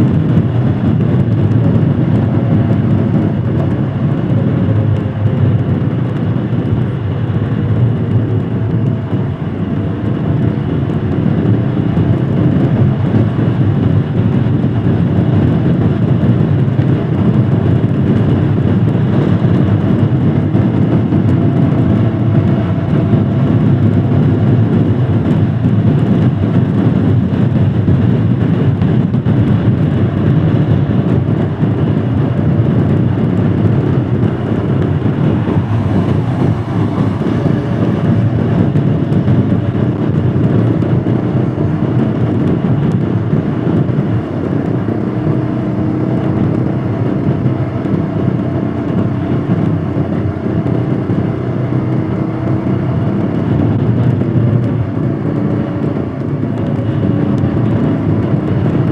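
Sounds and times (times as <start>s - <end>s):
motorcycle engine running: 0.0s - 58.9s
road and wind noise: 0.0s - 58.9s.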